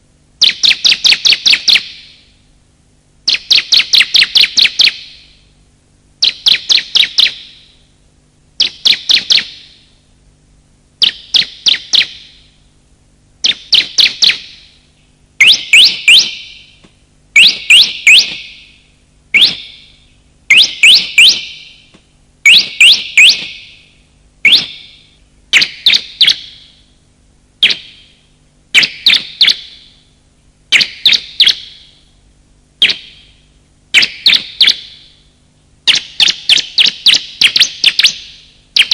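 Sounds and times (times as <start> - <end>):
bird sharp high chirps: 0.4 - 2.3, 3.3 - 5.4, 6.2 - 7.8, 8.6 - 9.9, 11.0 - 12.5, 13.4 - 14.8, 15.4 - 16.8, 17.4 - 26.9, 27.6 - 28.2, 28.8 - 30.0, 30.7 - 32.1, 32.8 - 35.3, 35.9 - 38.9.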